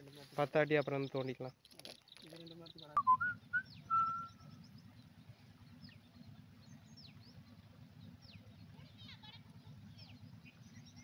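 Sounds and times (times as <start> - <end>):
birds whistling and chirping: 1.8 - 8.7, 9.9 - 11.0.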